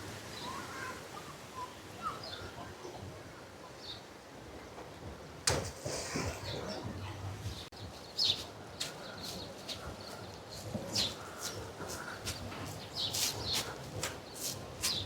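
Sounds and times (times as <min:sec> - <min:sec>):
small birds chirping: 0:06.4 - 0:15.0
footsteps crunching: 0:08.3 - 0:15.0.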